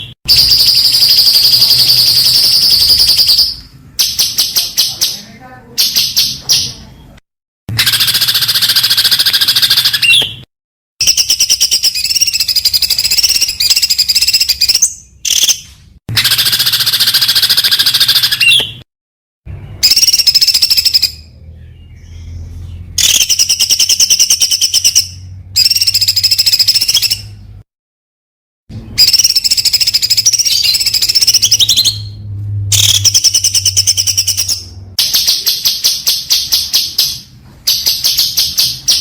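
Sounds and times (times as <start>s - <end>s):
songbird rapid high-pitched notes: 0.3s - 6.8s, 19.7s - 27.3s.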